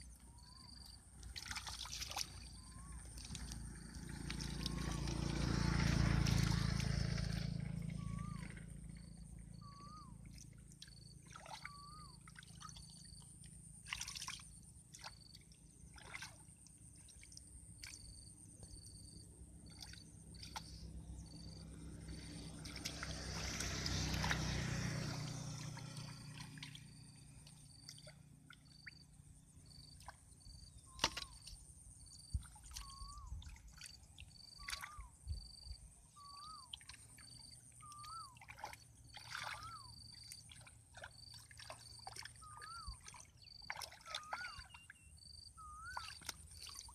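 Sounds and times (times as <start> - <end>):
water sloshing and trickling: 0.0 - 46.9
water splashes: 0.0 - 46.9
rush of water: 22.6 - 26.8.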